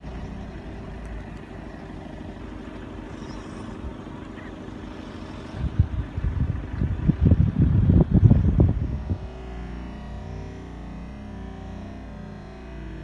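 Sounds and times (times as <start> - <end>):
low engine hum: 0.0 - 13.0
loud low rumbling thumps: 5.1 - 9.3.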